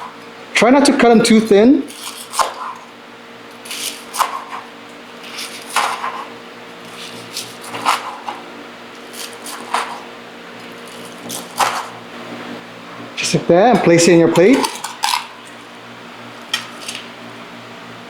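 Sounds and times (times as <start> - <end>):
knife sawing through crunchy crust: 1.9 - 2.9, 3.5 - 12.0, 14.2 - 15.6, 16.4 - 17.1.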